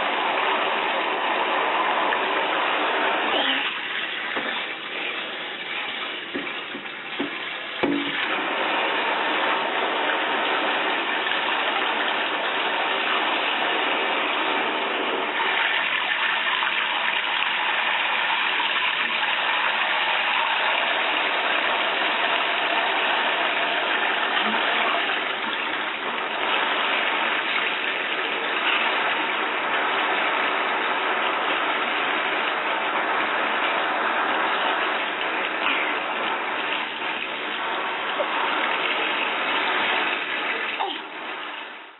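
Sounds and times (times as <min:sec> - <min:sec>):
shower spraying water into bathtub: 0:00.0 - 0:41.9
short knocks: 0:06.3 - 0:08.2.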